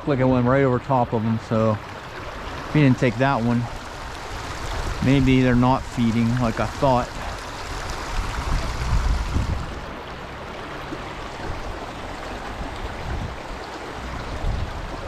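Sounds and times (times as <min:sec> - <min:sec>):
stream water running: 0:00.0 - 0:15.0.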